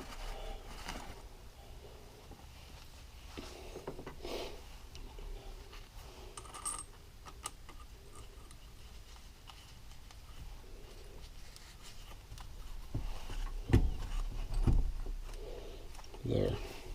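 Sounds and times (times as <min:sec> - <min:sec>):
metal parts clinking: 0:06.3 - 0:08.5.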